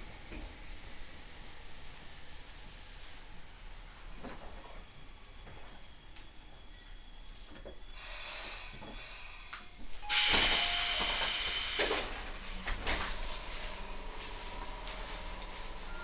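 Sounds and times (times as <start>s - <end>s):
train equipment hum: 0.0s - 16.0s
compressed air hiss: 8.0s - 12.4s.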